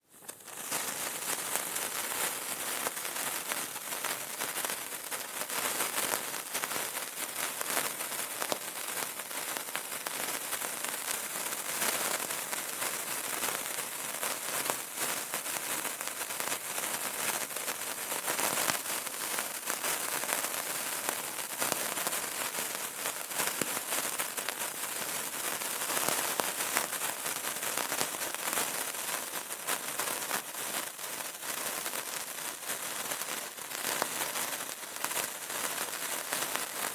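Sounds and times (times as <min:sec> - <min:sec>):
candle crackling: 0:08.4 - 0:28.4.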